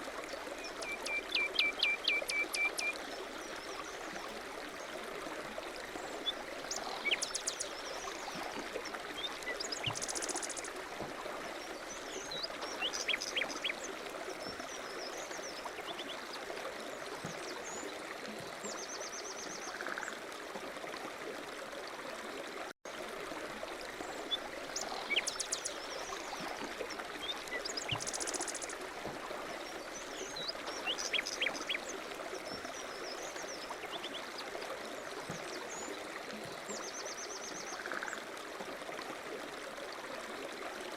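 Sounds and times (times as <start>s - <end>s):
stream flowing: 0.0s - 40.9s
small birds chirping: 6.3s - 8.4s.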